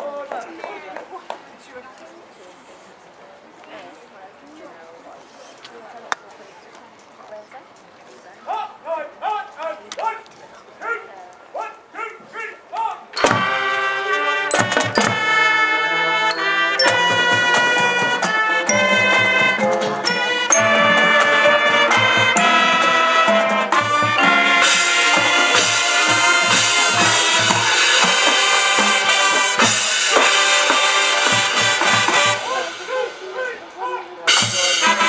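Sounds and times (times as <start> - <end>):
steady drum beat: 13.2 - 13.8, 14.5 - 15.5, 16.3 - 33.2, 34.3 - 35.0
marching band playing: 13.2 - 35.0.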